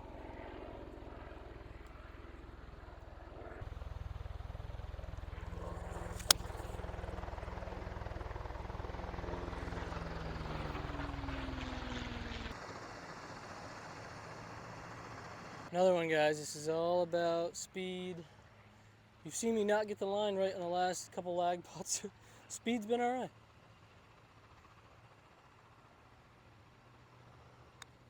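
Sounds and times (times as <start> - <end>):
aircraft engine drone overhead: 0.0 - 28.0
golf club striking ball: 5.9 - 6.8.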